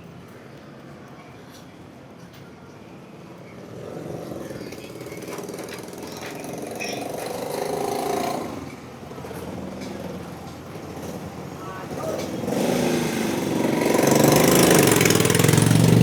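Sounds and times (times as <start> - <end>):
motorcycle engine running: 4.2 - 16.0.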